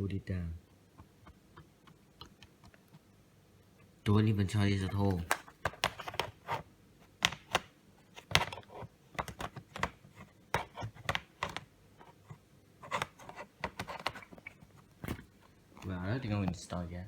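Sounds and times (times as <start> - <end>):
laptop keyboard typing clicks: 7.2 - 8.6.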